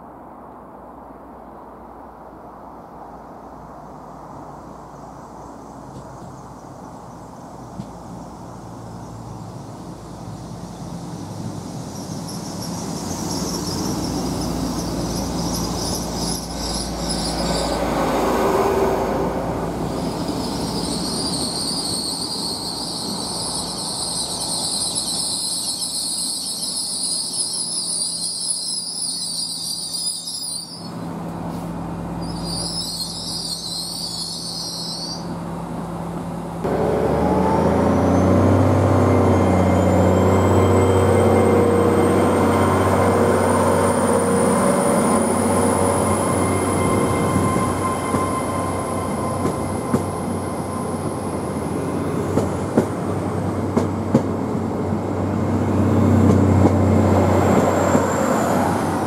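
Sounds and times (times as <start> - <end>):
train passing rumble: 0.0 - 59.0
high wheel squeal: 10.8 - 18.8, 19.9 - 31.1, 32.2 - 35.4, 36.7 - 52.0
deep engine drone: 36.4 - 43.2
rising whine: 36.6 - 51.7.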